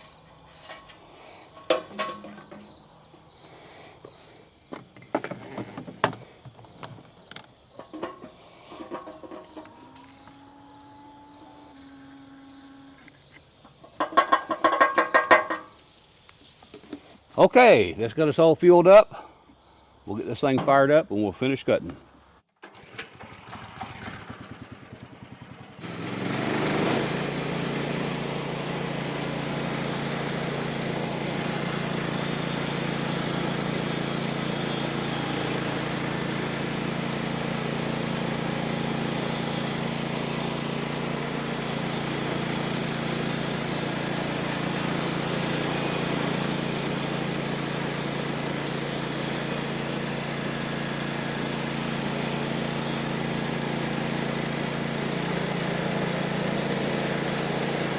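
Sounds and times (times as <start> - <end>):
small gasoline engine starting: 22.6 - 57.9.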